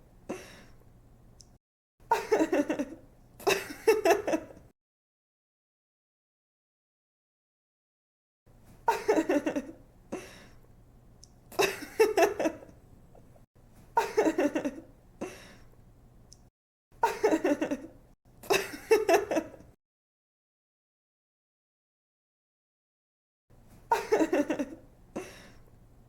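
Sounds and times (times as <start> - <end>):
young woman laughing: 2.1 - 4.6, 8.9 - 9.8, 11.6 - 12.7, 14.0 - 14.9, 17.0 - 19.7, 23.9 - 25.4.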